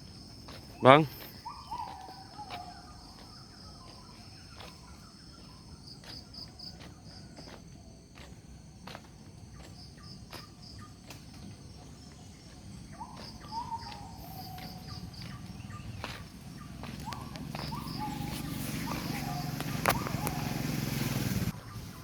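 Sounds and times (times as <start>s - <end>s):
crickets and insects chirping: 0.0s - 22.0s
bird whistling calls: 0.8s - 4.4s, 11.8s - 22.0s.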